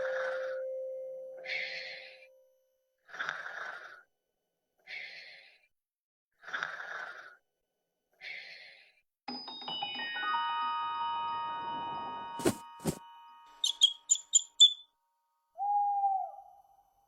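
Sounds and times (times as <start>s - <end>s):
chiming glockenspiel-like melody: 0.0s - 2.3s, 9.3s - 13.8s
slow human breathing: 4.8s - 5.7s.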